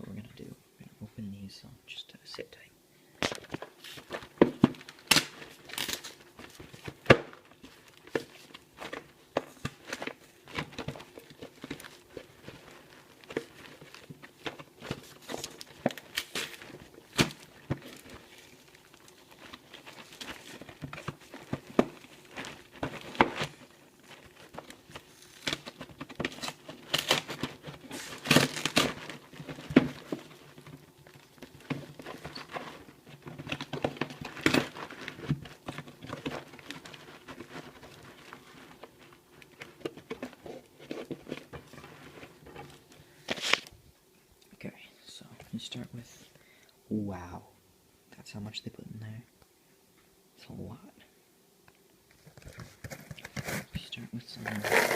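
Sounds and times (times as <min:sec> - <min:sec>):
packaging crinkling and tearing: 0:03.2 - 0:43.8, 0:52.1 - 0:53.8, 0:54.4 - 0:54.9
sharp crackles of packaging: 0:03.2 - 0:43.8, 0:52.1 - 0:54.9.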